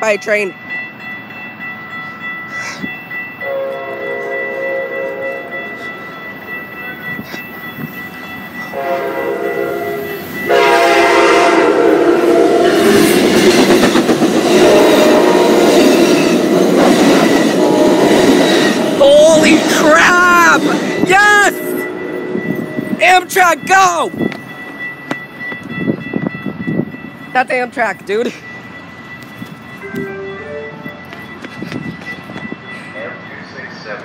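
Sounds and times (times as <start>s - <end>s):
high warning tone: 0.0s - 34.0s
train wheel and rail noise: 0.0s - 34.0s
train horn blasts: 3.4s - 5.5s, 8.7s - 13.2s, 14.5s - 16.1s, 17.4s - 18.7s.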